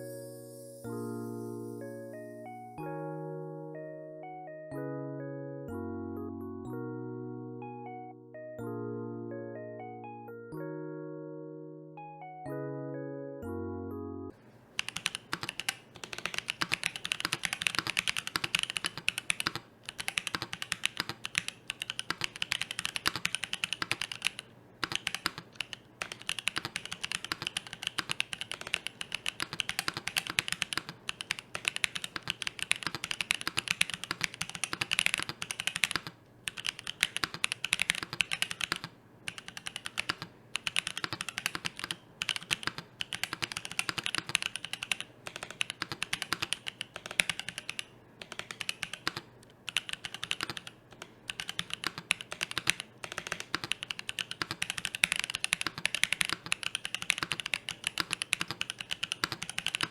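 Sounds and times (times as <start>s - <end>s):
typing on mechanical keyboard: 14.8s - 59.9s.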